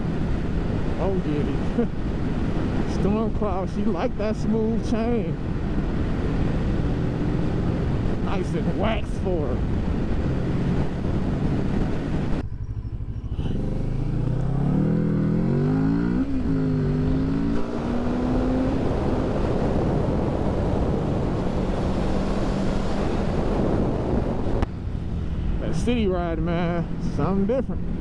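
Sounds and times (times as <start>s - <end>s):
wind noise: 0.0s - 28.0s
motorcycle engine accelerating: 5.4s - 8.3s, 8.9s - 28.0s.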